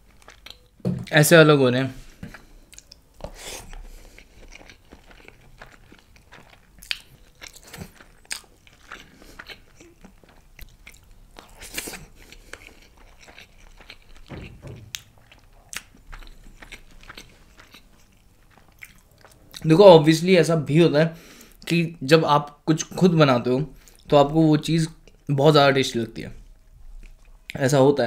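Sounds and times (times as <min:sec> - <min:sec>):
close chewing and eating: 0:00.0 - 0:01.2, 0:01.9 - 0:20.4, 0:22.5 - 0:27.7.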